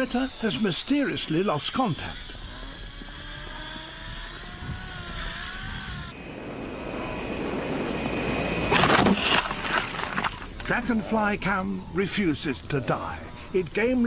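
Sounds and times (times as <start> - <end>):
drone motor whine: 0.0 - 14.0
steady hiss: 3.0 - 14.0.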